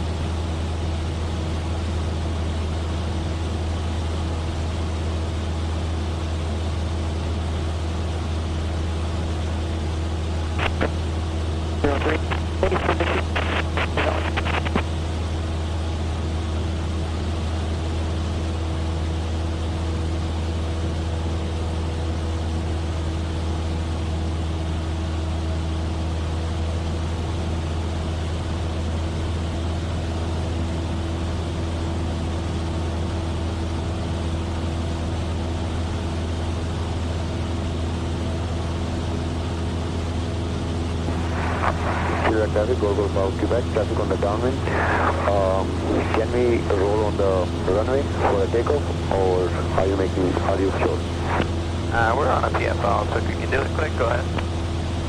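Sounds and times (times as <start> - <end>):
propeller plane engine droning: 41.1 - 54.8.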